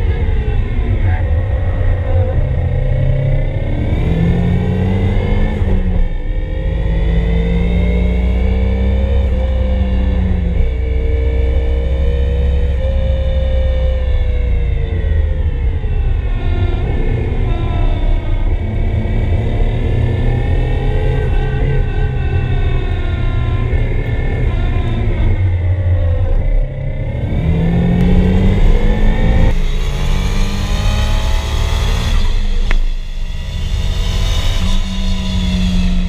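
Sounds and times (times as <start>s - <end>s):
car engine revving: 0.0s - 36.0s.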